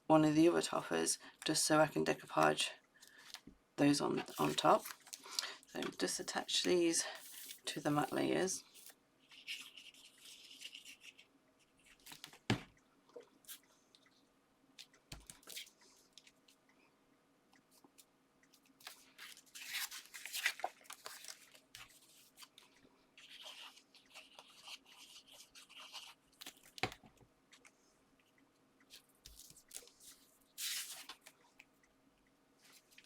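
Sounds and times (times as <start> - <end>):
paper rustling and scraping: 7.1 - 11.2, 18.8 - 22.6, 29.3 - 31.2.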